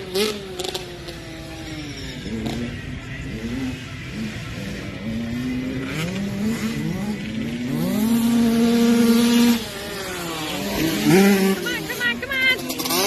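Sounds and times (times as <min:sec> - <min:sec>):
motocross bike engine accelerating: 0:00.0 - 0:13.0.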